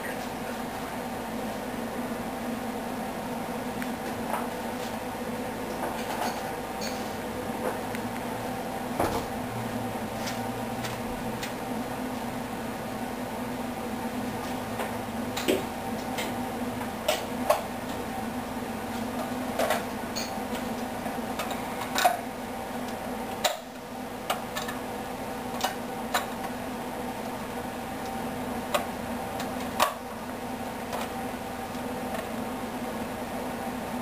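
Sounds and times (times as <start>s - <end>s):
steady electric hum: 0.0s - 34.0s.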